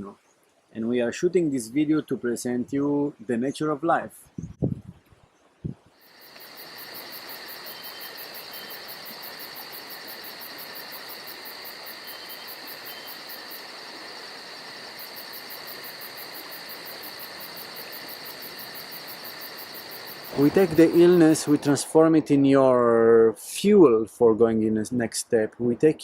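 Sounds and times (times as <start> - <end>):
insects trilling: 6.0 - 21.9.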